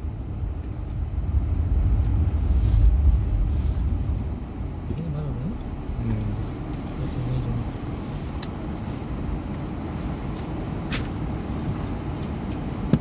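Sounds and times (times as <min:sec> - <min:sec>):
truck driving low rumble: 0:00.0 - 0:13.0.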